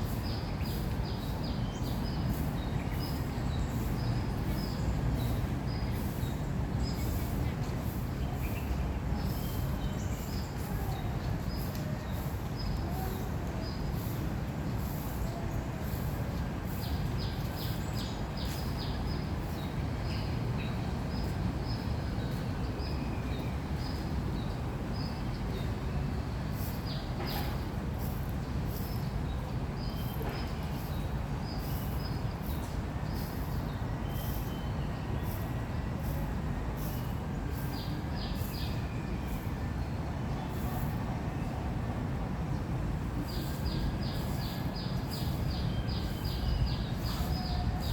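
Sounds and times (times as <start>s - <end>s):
distant city traffic rumble: 0.0s - 47.9s.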